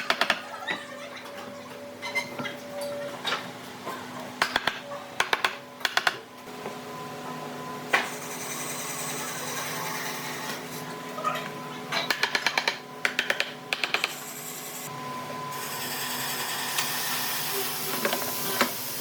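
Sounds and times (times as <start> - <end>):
power tool whirring hiss: 15.5 - 19.0.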